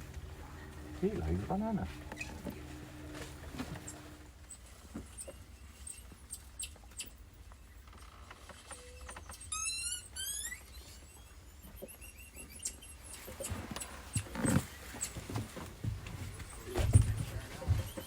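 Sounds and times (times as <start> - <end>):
low steady hum: 0.0 - 5.1
high squeaky animal calls: 9.2 - 14.0.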